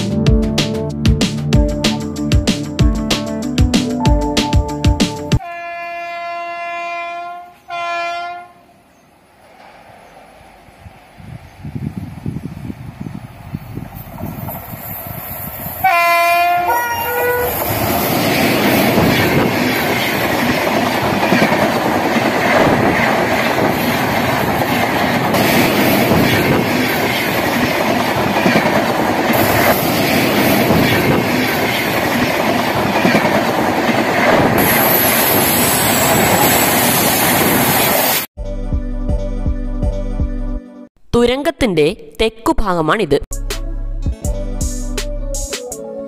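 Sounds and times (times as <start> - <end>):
train horn: 5.4 - 8.8, 15.8 - 17.6
train wheels rumbling on rails: 9.4 - 38.3.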